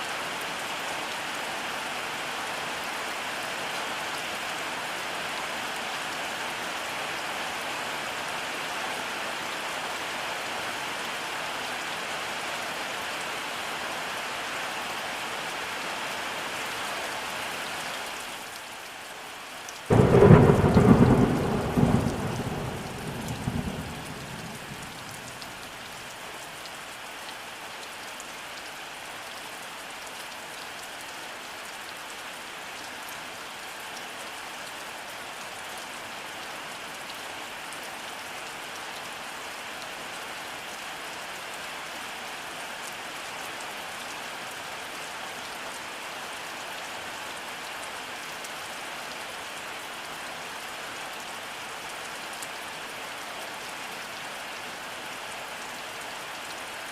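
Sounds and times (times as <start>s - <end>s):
rain pattering: 15.1s - 56.9s
thunder rumble: 19.9s - 25.6s.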